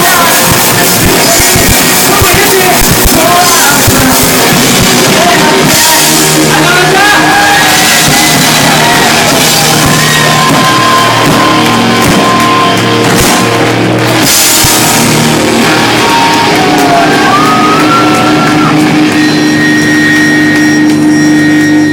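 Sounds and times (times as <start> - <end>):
distorted electric guitars: 0.0 - 21.9
drum kit: 0.0 - 21.9
sustained ringing tones: 18.2 - 21.9.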